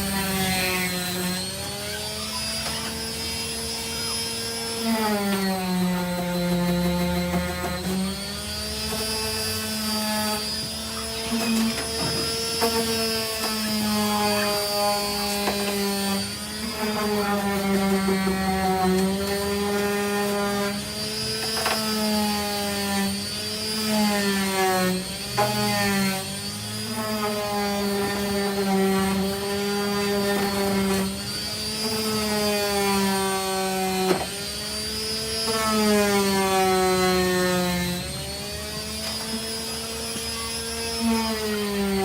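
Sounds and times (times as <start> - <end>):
power sander whining: 0.0 - 42.0.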